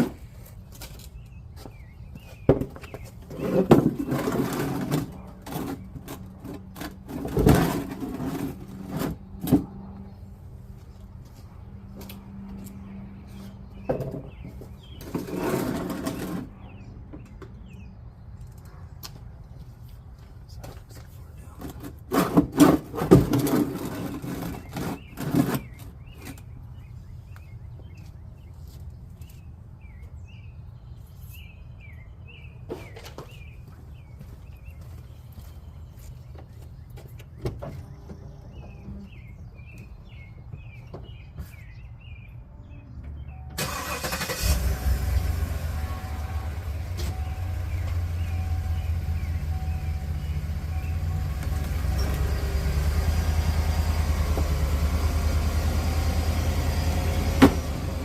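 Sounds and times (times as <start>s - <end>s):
hard objects clattering and scraping: 2.6s - 9.6s, 13.9s - 16.5s, 21.6s - 25.8s
car engine cranking and idling: 43.2s - 58.0s.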